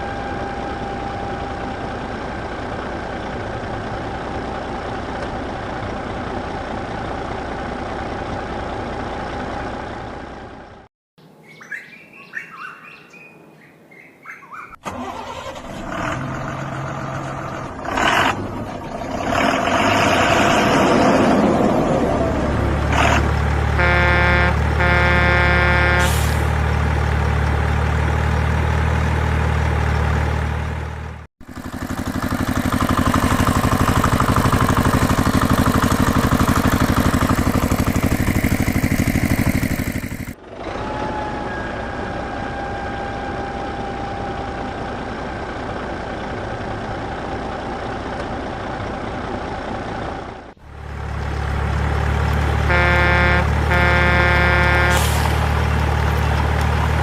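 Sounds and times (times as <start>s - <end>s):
truck engine running: 0.0s - 10.9s, 14.8s - 57.0s
truck horn blasts: 22.9s - 26.5s, 52.6s - 55.6s.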